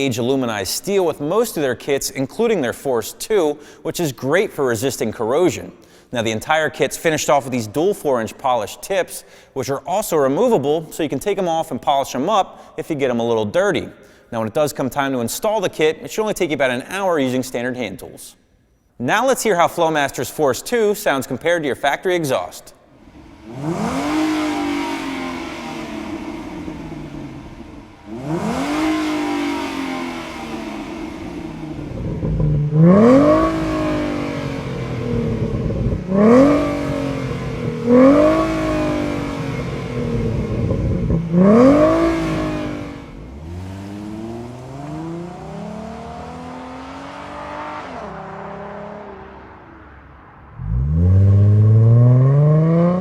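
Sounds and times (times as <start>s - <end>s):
car engine revving: 22.9s - 53.0s.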